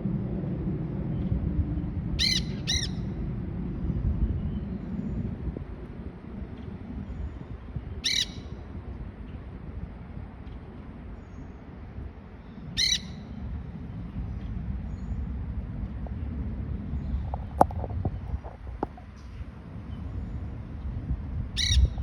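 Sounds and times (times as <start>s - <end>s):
steady low rumble: 0.0s - 22.0s
parrot squawks: 2.2s - 3.0s, 8.0s - 8.4s, 12.8s - 13.1s.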